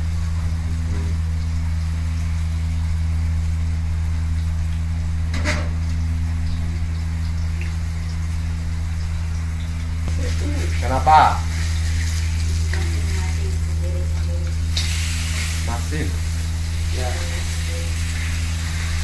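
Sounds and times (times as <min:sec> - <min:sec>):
low hum: 0:00.0 - 0:19.0
meat sizzling in a wok: 0:07.8 - 0:19.0.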